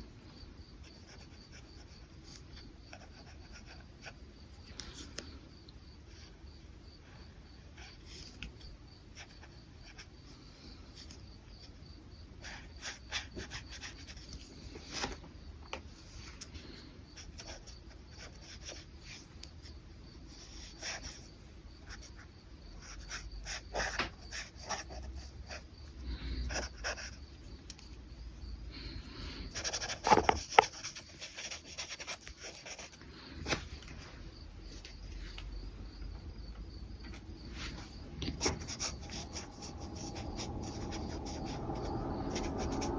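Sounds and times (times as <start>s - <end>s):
brush pen scratching on paper: 26.5s - 27.3s, 29.5s - 33.0s, 37.5s - 42.9s.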